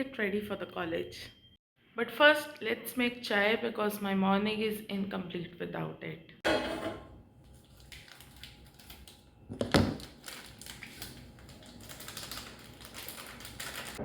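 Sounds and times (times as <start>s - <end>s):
cookware clattering: 6.5s - 7.2s.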